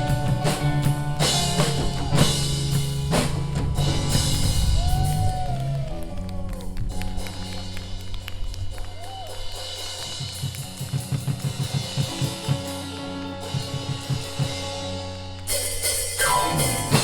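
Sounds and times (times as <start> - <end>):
bass drum beat: 0.0 - 17.0
cymbals: 0.0 - 17.0
pop rock band playing: 0.0 - 17.0.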